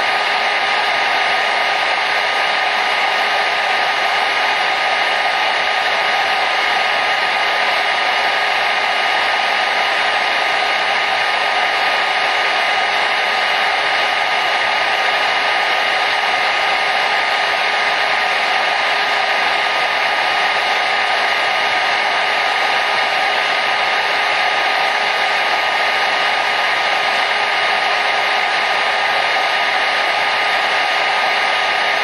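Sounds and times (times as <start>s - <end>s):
hair dryer running: 0.0s - 32.0s.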